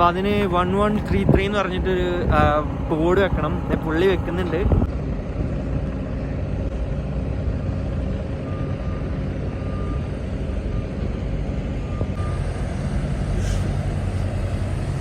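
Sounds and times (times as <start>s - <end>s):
diesel truck engine idling: 0.0s - 15.0s
reversing alarm beeping: 8.3s - 13.8s.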